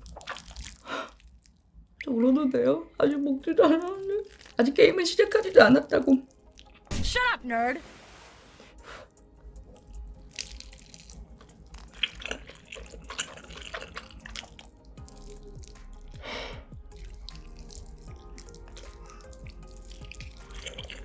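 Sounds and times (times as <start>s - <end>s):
wet chewing smacks: 0.0s - 1.7s, 4.1s - 4.7s, 9.7s - 16.2s, 16.9s - 21.0s.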